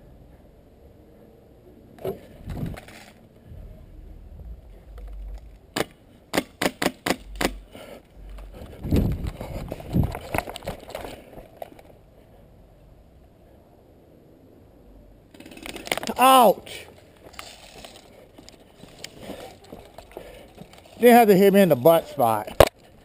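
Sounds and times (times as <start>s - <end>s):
low thumps: 3.4s - 10.4s
rustle of movement: 7.2s - 12.5s, 16.7s - 23.0s.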